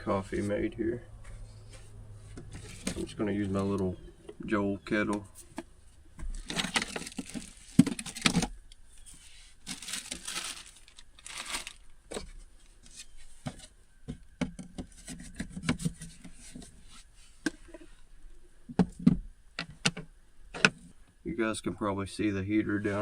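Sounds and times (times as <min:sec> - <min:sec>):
gear rustling and crinkling: 0:00.0 - 0:18.4.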